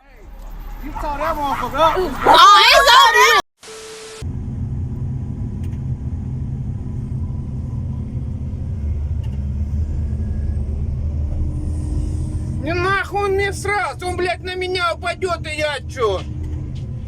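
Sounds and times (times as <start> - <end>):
vehicle engine running: 4.2 - 17.0.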